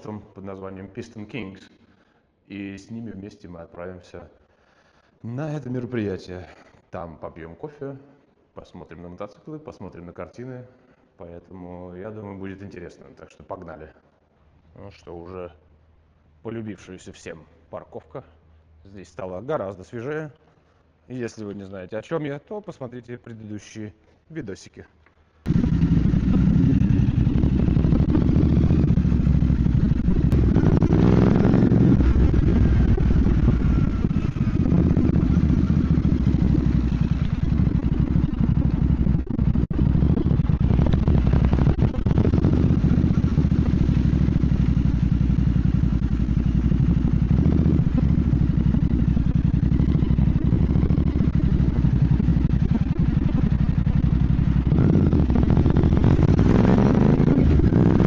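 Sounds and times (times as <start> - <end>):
motorcycle engine running: 25.5 - 58.0.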